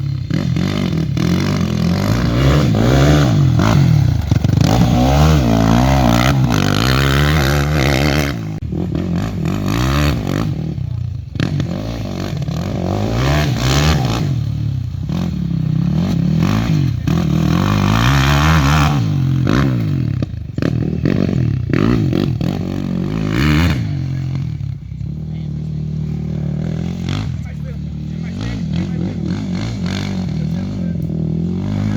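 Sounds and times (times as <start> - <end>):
quad bike engine revving: 0.0 - 31.9.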